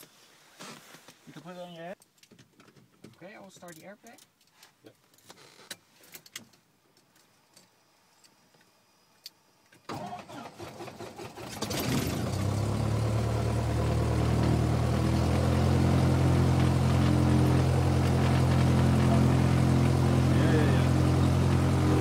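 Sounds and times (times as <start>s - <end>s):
starter cranking engine: 9.9s - 22.0s
aircraft engine idling: 12.2s - 22.0s.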